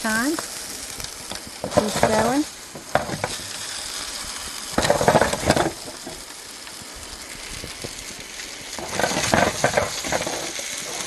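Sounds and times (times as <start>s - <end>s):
hot dogs sizzling: 0.0s - 11.0s
clattering of food being turned: 0.4s - 3.6s, 4.7s - 6.2s, 8.7s - 11.0s.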